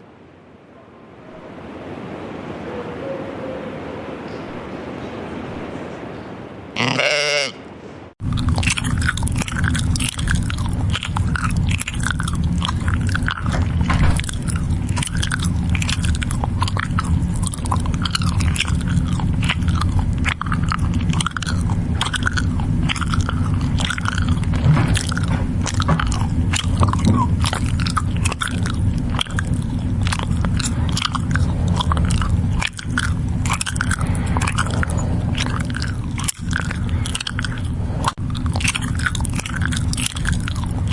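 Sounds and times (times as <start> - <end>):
low steady rumble: 0.0 - 40.9
goat chewing and crunching feed: 6.8 - 7.5, 8.2 - 40.9.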